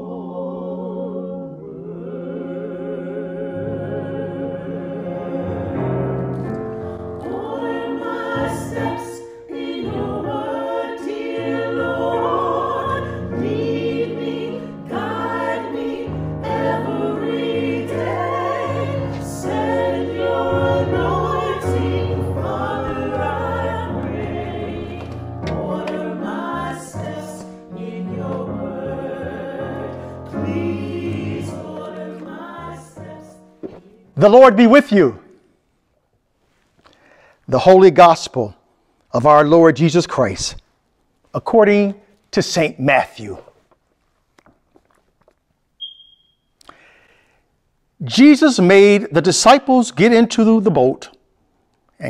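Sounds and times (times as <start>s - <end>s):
choir singing a hymn: 0.0s - 35.1s.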